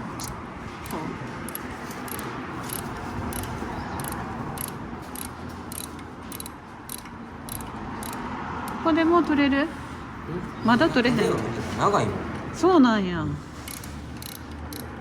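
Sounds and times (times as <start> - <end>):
ratchet wrench clicking: 0.2 - 8.8, 13.7 - 15.0.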